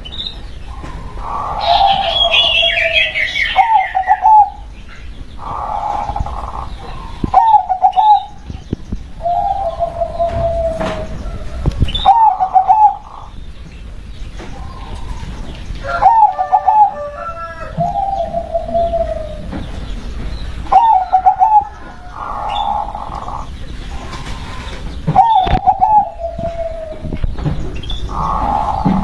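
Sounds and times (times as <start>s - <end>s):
dove cooing: 0.6s - 4.7s, 5.3s - 13.4s, 14.5s - 20.0s, 20.6s - 27.4s, 28.0s - 29.0s.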